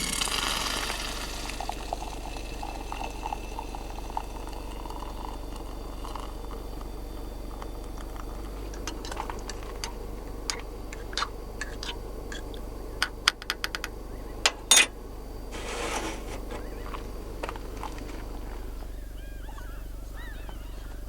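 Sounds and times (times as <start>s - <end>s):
rustle: 15.5s - 16.8s.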